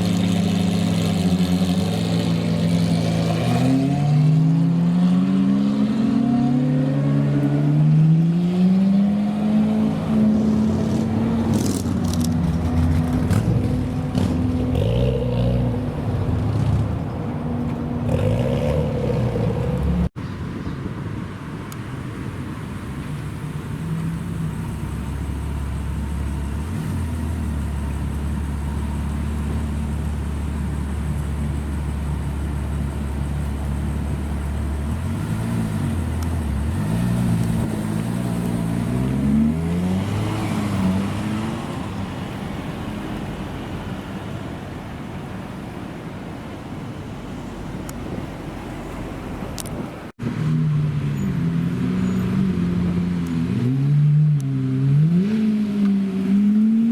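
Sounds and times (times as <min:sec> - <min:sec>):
engine idling with low drone: 0:22.7 - 0:35.1.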